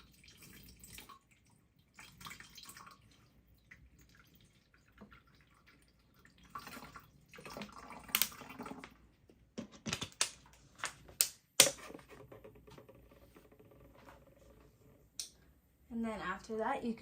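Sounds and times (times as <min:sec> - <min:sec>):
water pouring into a tank: 0:00.0 - 0:09.1.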